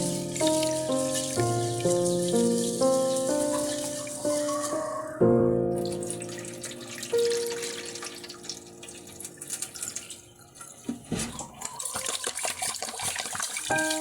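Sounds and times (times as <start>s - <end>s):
water trickling and dripping: 0.0s - 14.0s.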